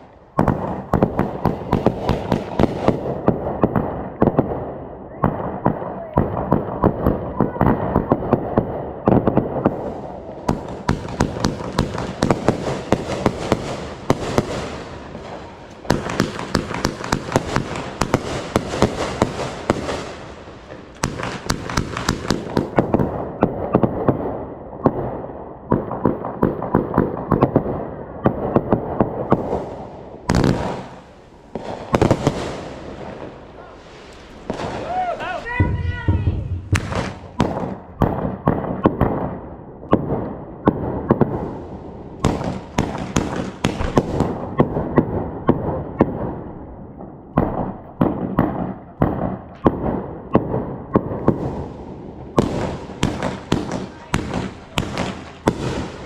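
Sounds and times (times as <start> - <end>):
fireworks crackling and popping: 0.0 - 56.0
loud firework bangs: 0.0 - 56.0.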